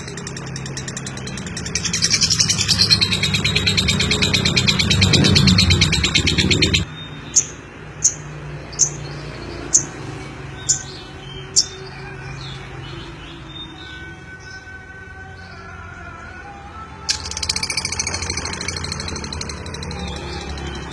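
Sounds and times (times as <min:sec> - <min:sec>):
bird rattling trill: 0:17.1 - 0:20.9
short high bird chirps: 0:17.1 - 0:20.9.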